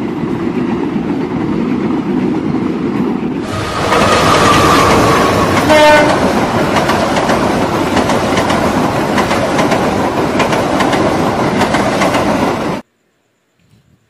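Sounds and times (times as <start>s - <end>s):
locomotive engine and wheels rumbling: 0.0s - 12.8s
wheels clacking over rail joints: 3.4s - 12.8s
train horn blast: 3.5s - 6.5s.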